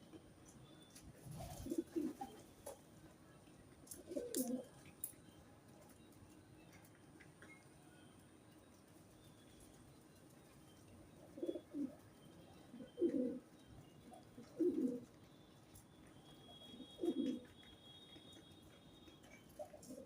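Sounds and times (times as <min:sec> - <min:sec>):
pigeon cooing: 0:01.2 - 0:02.8, 0:03.9 - 0:04.8, 0:11.2 - 0:12.0, 0:12.6 - 0:15.1, 0:16.4 - 0:17.6, 0:19.3 - 0:20.0.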